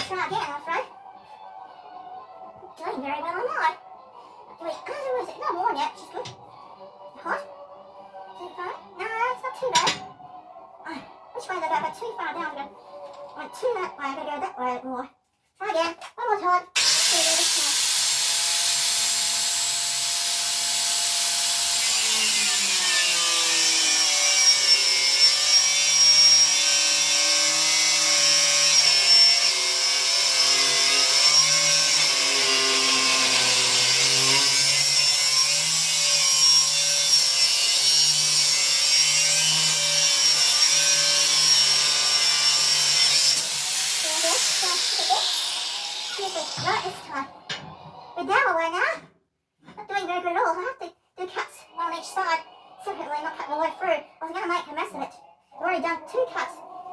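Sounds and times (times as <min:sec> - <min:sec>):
cut-off disc grinding steel: 0:16.8 - 0:47.8.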